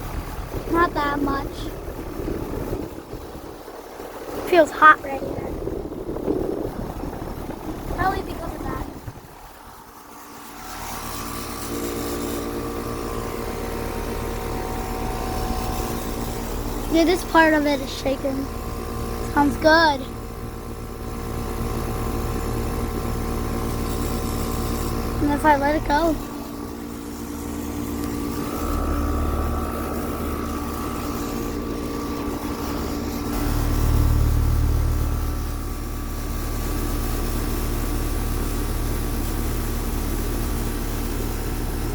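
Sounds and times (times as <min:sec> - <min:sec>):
low rumble: 0:00.0 - 0:11.3, 0:25.1 - 0:37.0
air conditioner unit humming: 0:00.0 - 0:41.9.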